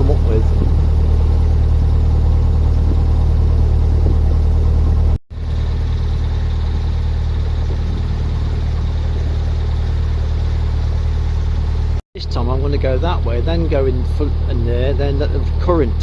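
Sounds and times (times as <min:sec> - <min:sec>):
boat diesel engine humming: 0:00.0 - 0:12.0.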